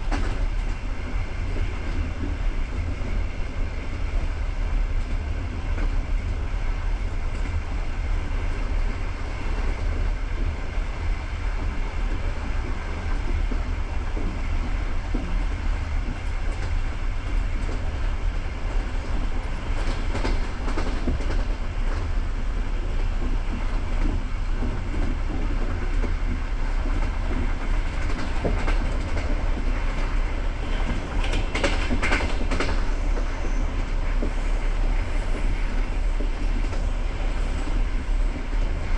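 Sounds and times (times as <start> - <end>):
train wheels rumbling on rail: 0.0 - 38.9
wheels clicking over rail joints: 22.9 - 38.8.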